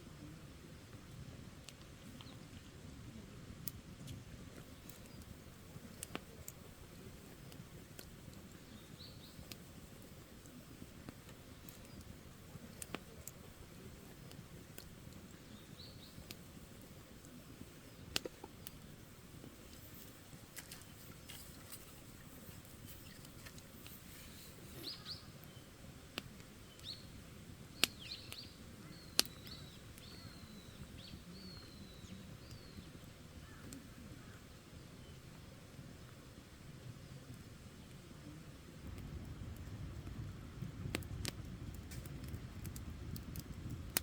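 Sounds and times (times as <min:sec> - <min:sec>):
campfire crackling: 0:00.0 - 0:44.0
fire pops: 0:00.8 - 0:34.0, 0:35.2 - 0:44.0
bird chirping: 0:24.1 - 0:25.7, 0:27.8 - 0:34.4.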